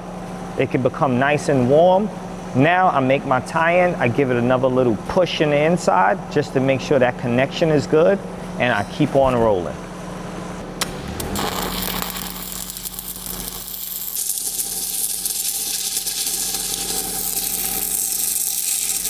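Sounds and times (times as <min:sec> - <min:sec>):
welding arc crackling and hissing: 0:10.8 - 0:19.0.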